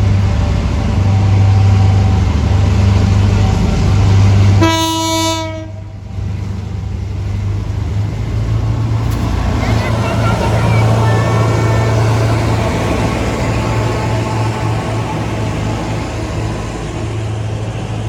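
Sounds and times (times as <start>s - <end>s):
locomotive engine droning: 0.0s - 18.0s
locomotive horn blast: 4.6s - 5.9s, 9.4s - 15.1s.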